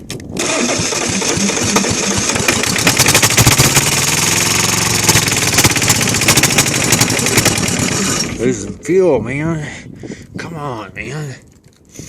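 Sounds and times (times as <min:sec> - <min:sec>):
diesel engine knocking: 0:01.0 - 0:08.3.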